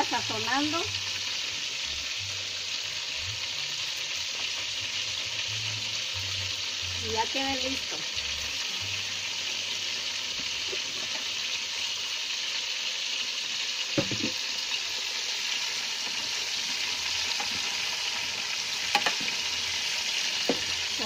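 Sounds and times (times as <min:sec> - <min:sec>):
chicken frying in hot oil: 0:00.0 - 0:21.0
metal spoon hitting a pot: 0:18.9 - 0:19.4.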